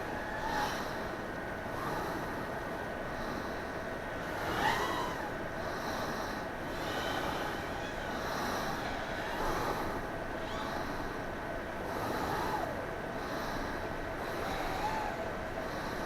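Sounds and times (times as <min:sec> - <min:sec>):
drone motors whining: 0:04.3 - 0:05.4.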